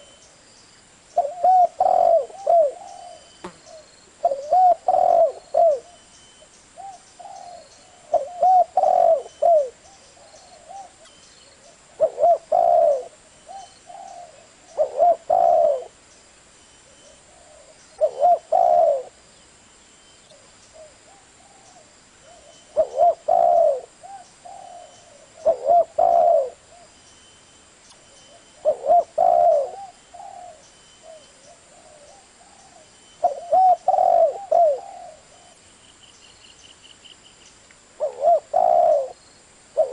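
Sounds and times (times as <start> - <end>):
dove cooing: 1.2 - 6.0, 6.8 - 16.0, 16.8 - 19.2, 20.3 - 26.9, 28.3 - 35.6, 38.0 - 39.2.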